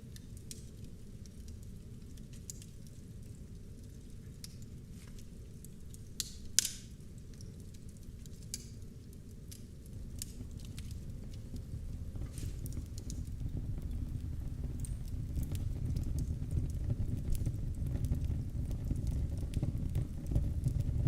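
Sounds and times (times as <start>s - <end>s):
wood fire crackling: 0.0s - 21.0s
sharp pops of fire: 6.0s - 20.9s.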